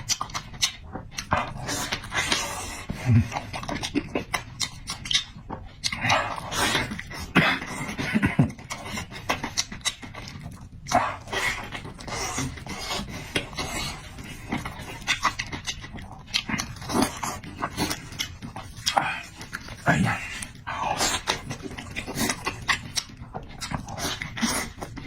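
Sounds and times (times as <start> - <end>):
wet mouth clicks: 0.0 - 7.7
person chewing: 0.0 - 25.0.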